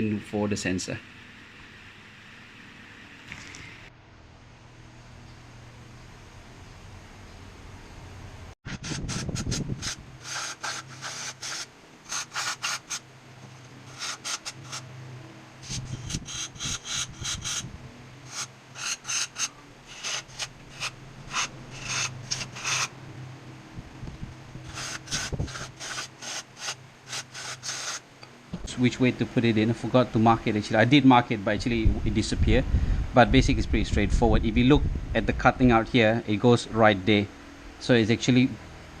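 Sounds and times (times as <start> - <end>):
brush scrubbing metal: 8.7 - 14.9, 15.6 - 17.6, 18.3 - 22.9, 24.6 - 28.1
low hum: 19.5 - 26.0.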